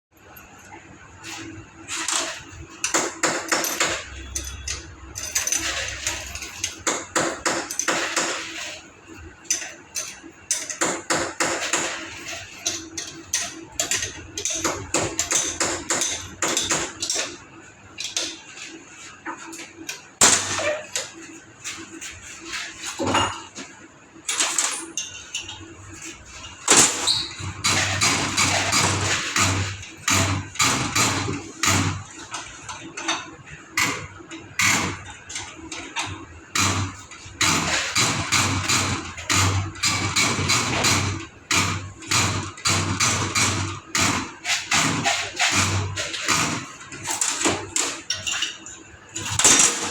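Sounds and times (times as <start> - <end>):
knocks on metal parts: 2.1 - 8.6, 9.5 - 17.4, 26.6 - 32.1, 35.9 - 48.4.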